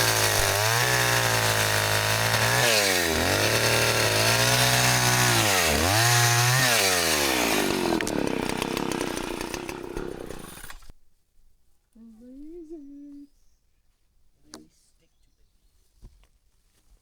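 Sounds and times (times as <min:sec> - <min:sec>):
chainsaw engine at high revs: 0:00.0 - 0:10.9.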